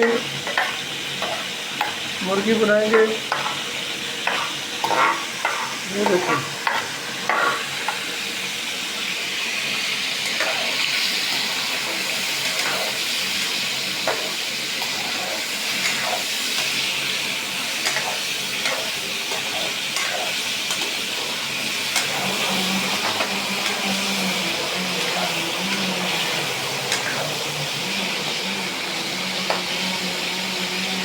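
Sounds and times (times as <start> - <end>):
meat sizzling in hot oil: 0.0 - 31.0.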